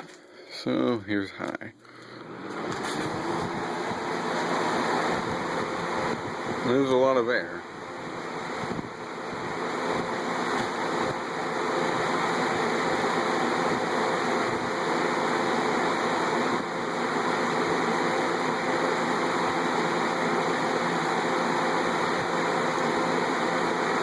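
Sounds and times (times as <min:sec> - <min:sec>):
fan air rushing: 0:00.0 - 0:24.0
fan motor hum: 0:00.0 - 0:24.0.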